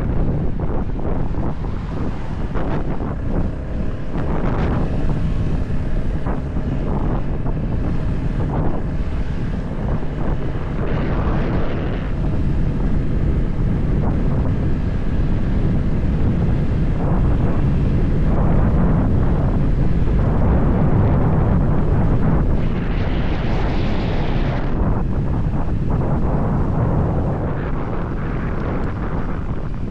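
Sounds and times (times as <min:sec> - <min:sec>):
motorcycle engine drone: 0:00.0 - 0:29.9
wind buffeting microphone: 0:00.0 - 0:29.9.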